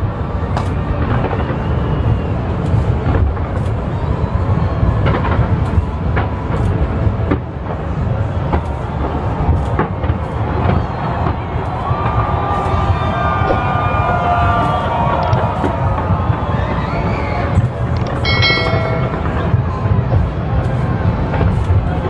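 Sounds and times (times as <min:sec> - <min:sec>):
sharp firework cracks: 0:00.5 - 0:04.1, 0:05.0 - 0:16.6
fireworks booming: 0:00.9 - 0:16.8, 0:18.2 - 0:22.0.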